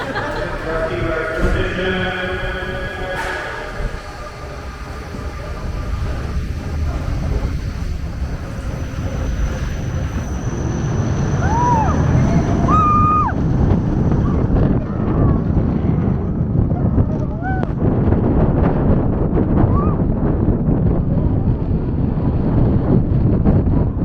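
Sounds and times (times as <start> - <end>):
high squeals: 0.0 - 14.5
roller coaster rumbling on track: 0.0 - 24.0.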